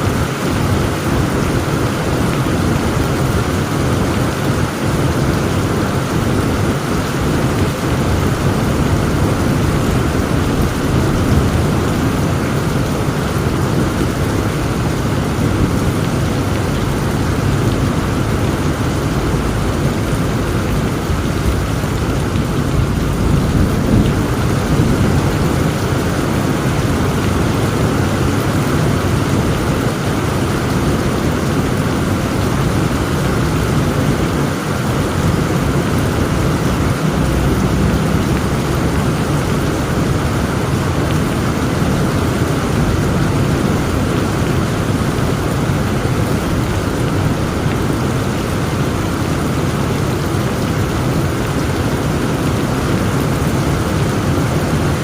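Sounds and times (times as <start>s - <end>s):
heavy rain pouring: 0.0s - 55.0s
low rumble of thunder: 0.1s - 49.5s.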